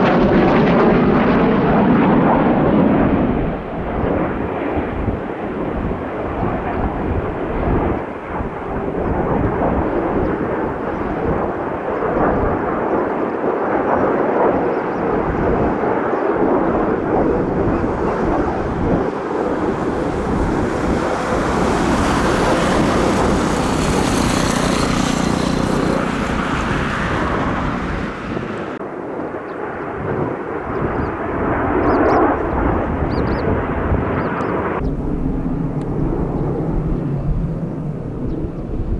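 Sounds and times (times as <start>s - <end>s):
jet engines roaring: 0.0s - 38.9s.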